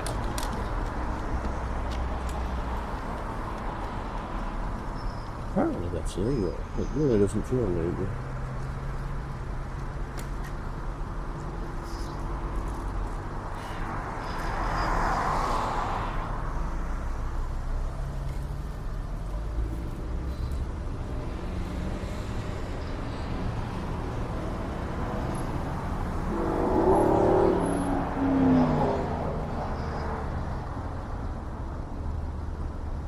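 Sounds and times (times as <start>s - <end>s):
vehicle passing close by: 12.5s - 31.0s.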